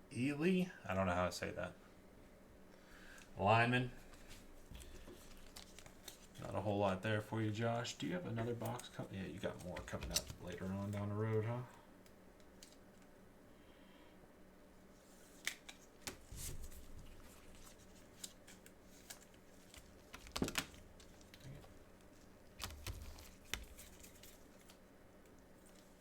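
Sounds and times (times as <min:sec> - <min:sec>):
packaging crinkling: 0:04.8 - 0:06.4, 0:17.1 - 0:24.8.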